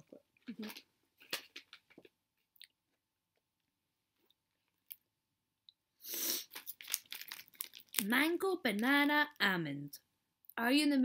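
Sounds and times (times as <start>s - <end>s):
snack packaging rustling: 6.4s - 8.9s.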